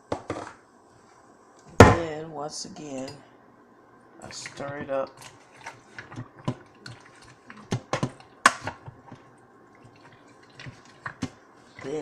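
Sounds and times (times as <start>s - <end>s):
spoon stirring food in pot: 4.2s - 12.0s.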